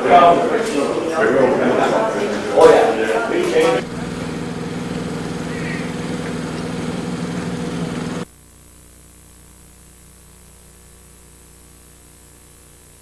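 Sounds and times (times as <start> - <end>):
engine-like running noise: 0.0 - 8.3
faint electrical hum: 0.0 - 13.0.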